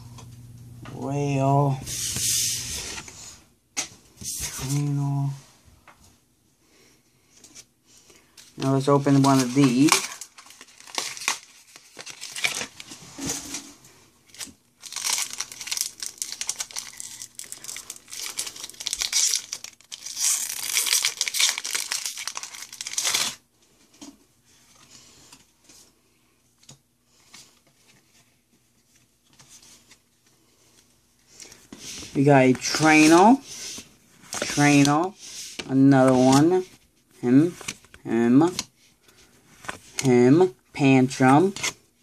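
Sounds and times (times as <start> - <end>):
wrapper tearing and crinkling: 9.1 - 13.0, 14.3 - 23.4.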